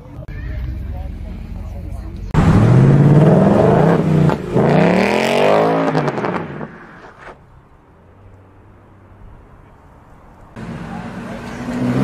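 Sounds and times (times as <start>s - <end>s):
car engine accelerating hard: 0.6s - 6.7s, 10.6s - 12.0s.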